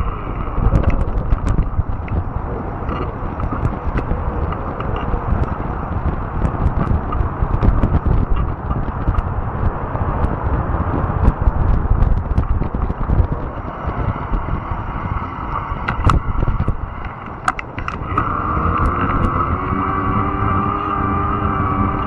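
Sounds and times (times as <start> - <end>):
tyres rumbling on rough ground: 0.0 - 22.0
sharp clicks and snaps: 15.8 - 22.0
electric motor whine: 17.8 - 22.0.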